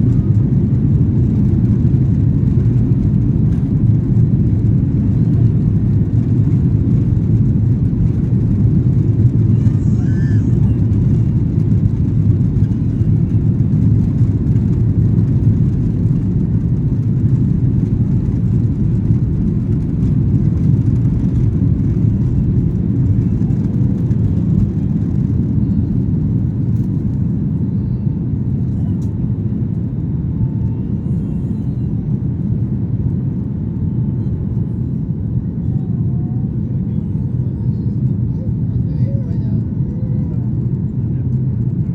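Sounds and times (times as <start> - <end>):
jet engines deep rumble: 0.0 - 41.9.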